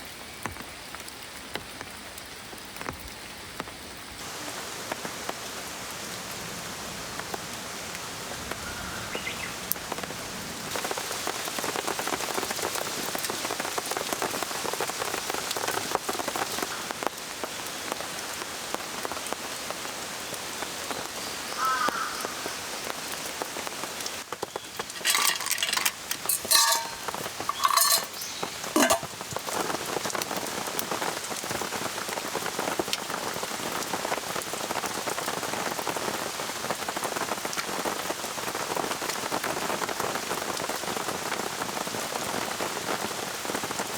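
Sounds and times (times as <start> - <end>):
rain pattering: 0.0 - 43.9
clicks and rattles: 24.8 - 29.2.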